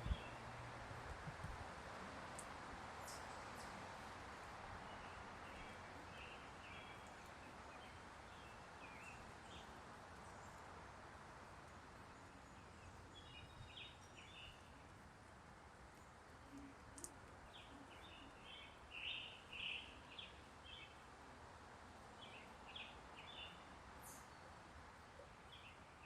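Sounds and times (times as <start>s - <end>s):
faint outdoor background hiss: 0.0s - 26.0s
soft bird chirps: 3.0s - 4.1s, 4.8s - 10.8s, 12.0s - 15.0s, 15.9s - 21.1s, 22.2s - 26.0s.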